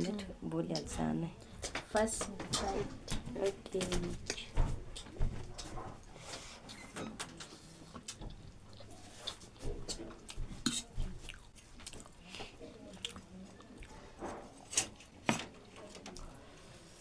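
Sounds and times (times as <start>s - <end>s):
slurping and chewing noodles: 7.4s - 17.0s.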